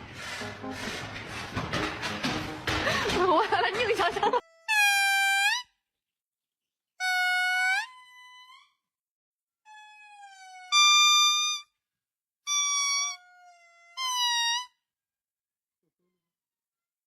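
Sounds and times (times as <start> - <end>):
pet animal high cries: 7.0 - 8.7, 9.7 - 11.6, 12.5 - 14.7.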